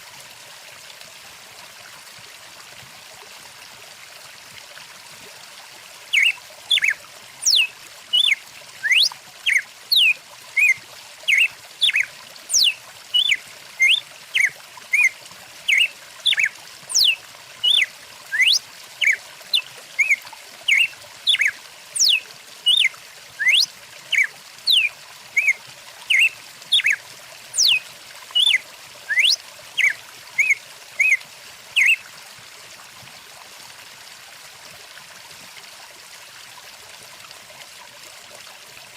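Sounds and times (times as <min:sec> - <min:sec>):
stream rushing: 0:06.1 - 0:19.2, 0:20.0 - 0:31.2
songbird whistling: 0:06.2 - 0:15.1, 0:15.7 - 0:27.0, 0:27.6 - 0:27.8, 0:28.4 - 0:31.2, 0:31.8 - 0:32.0.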